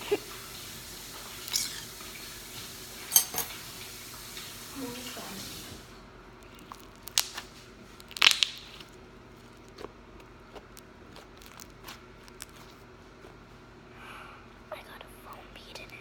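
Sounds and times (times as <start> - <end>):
slime squishing clicks and pops: 6.9 - 7.4, 8.1 - 8.9.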